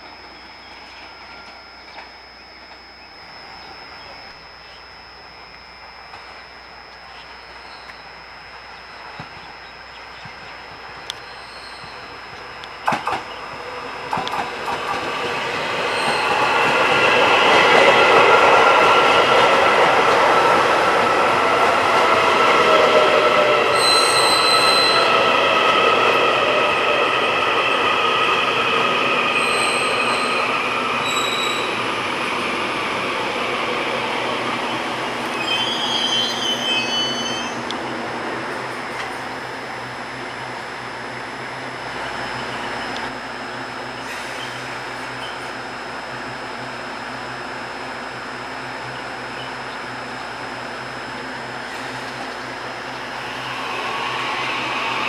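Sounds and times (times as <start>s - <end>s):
train passing on rails: 0.0s - 5.1s, 8.4s - 55.0s
high ringing tones: 0.0s - 43.3s
wheels squealing: 21.7s - 32.6s.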